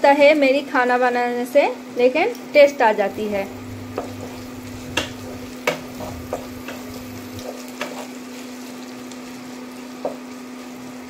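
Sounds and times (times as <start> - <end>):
onions sizzling in oil: 0.0 - 11.0
wooden spatula scraping a pan: 3.2 - 11.0.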